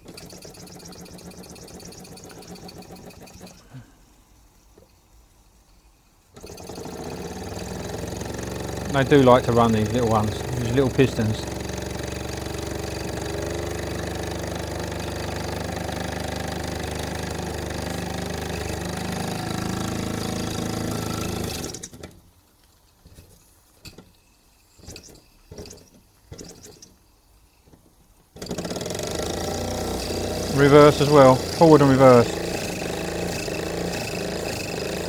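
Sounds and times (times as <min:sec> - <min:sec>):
toy steam engine running: 0:00.0 - 0:03.8, 0:06.4 - 0:22.0, 0:28.4 - 0:35.0.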